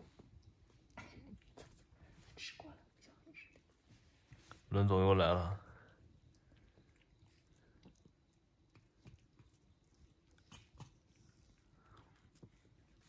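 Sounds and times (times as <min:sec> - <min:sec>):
cat chewing: 0:00.0 - 0:02.2, 0:05.5 - 0:13.0.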